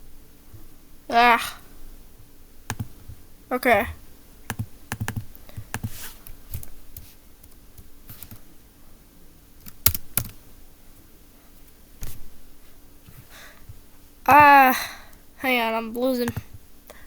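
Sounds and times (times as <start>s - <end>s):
computer mouse clicking: 2.7s - 2.9s, 4.5s - 8.4s, 9.6s - 10.4s.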